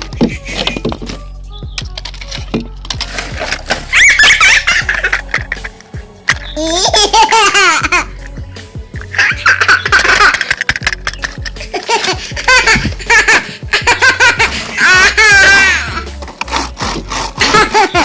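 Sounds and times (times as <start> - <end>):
background music with bass line: 0.0 - 18.0
cartoon giggling voices: 3.9 - 5.8, 6.4 - 8.2, 9.1 - 16.1, 17.4 - 18.0.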